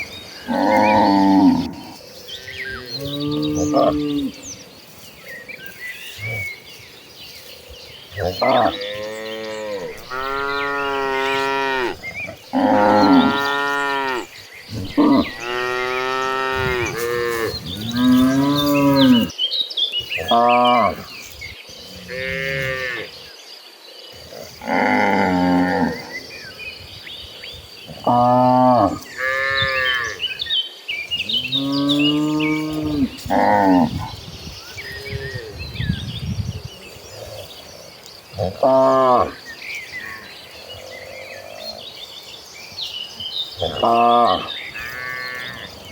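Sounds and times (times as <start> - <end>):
small birds chirping: 0.0 - 45.9
cattle mooing: 0.5 - 2.0, 8.2 - 19.3.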